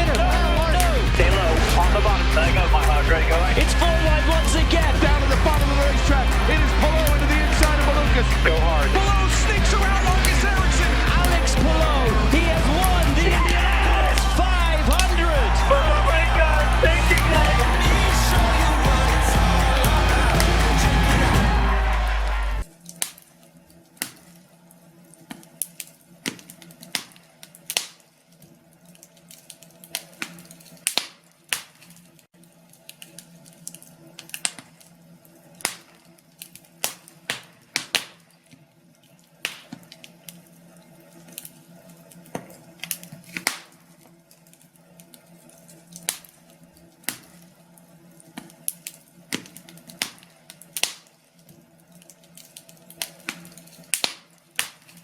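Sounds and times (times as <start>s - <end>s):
wood fire crackling: 0.0s - 23.3s, 39.0s - 55.0s.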